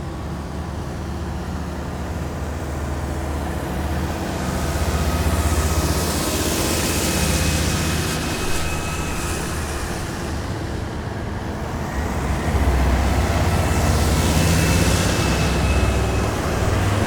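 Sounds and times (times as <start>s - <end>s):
heavy vehicles driving past: 7.2s - 17.0s.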